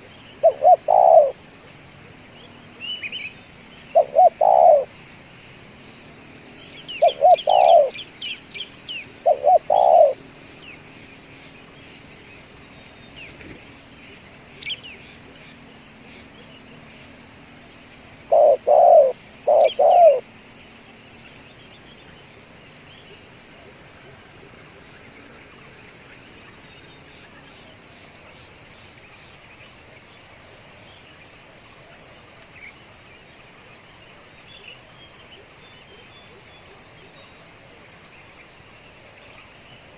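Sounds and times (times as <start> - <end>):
dove cooing: 0.0 - 1.4, 3.9 - 4.9, 7.0 - 8.0, 9.1 - 10.2, 18.2 - 20.3
small birds chirping: 0.0 - 17.2, 18.0 - 23.2
high insect drone: 0.0 - 39.9.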